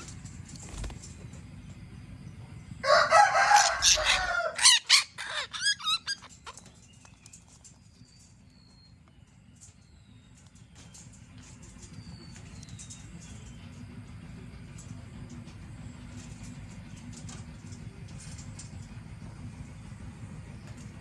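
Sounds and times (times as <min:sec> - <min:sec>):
bird calling harshly: 0:03.4 - 0:06.6.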